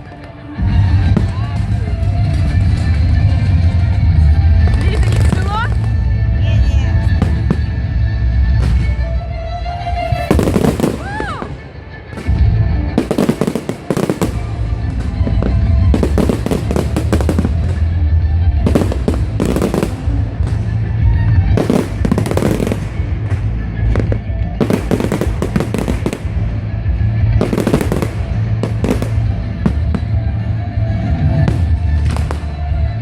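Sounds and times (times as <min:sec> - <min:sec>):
fireworks bangs and crackles: 0:00.0 - 0:33.0
low rumble: 0:14.4 - 0:33.0.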